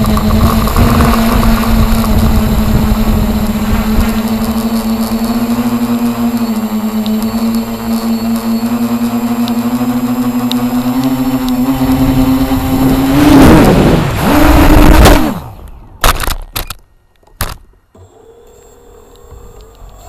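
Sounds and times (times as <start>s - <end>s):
model helicopter motor whine: 0.0s - 15.7s.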